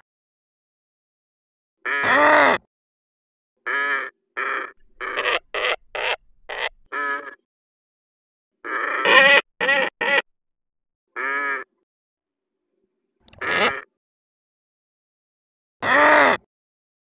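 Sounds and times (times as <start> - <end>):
short animal calls: 3.7 - 7.5, 8.6 - 10.2, 13.4 - 14.0, 15.8 - 16.4.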